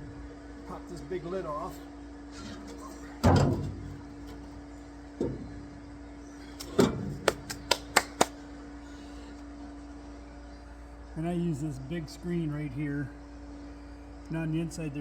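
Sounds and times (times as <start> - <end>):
steady hum: 0.0 - 15.0
metal lid clanking: 2.4 - 4.5.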